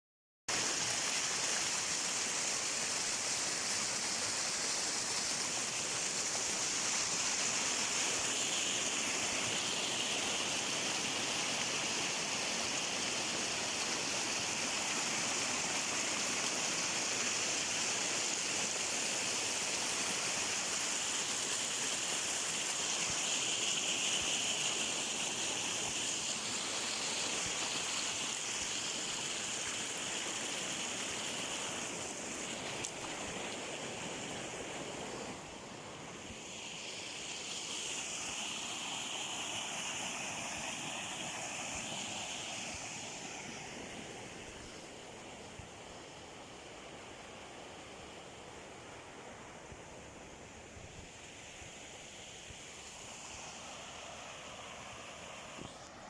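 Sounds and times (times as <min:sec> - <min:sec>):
stream rushing: 0:00.5 - 0:56.0.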